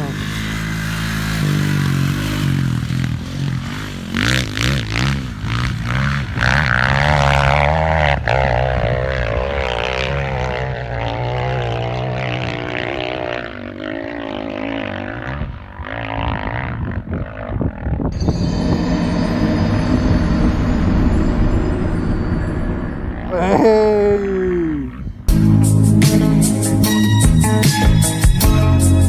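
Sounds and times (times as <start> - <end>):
dirt bike engine revving: 0.0 - 18.2.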